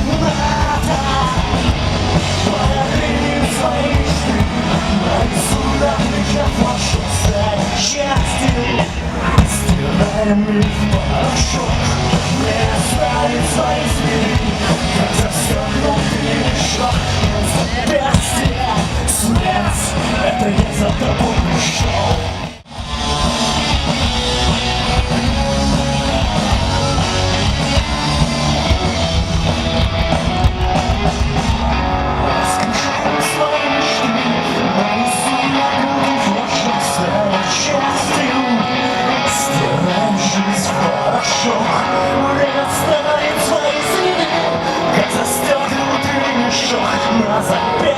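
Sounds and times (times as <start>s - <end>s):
deep bass: 0.0s - 32.8s
rock band playing live: 0.0s - 47.9s.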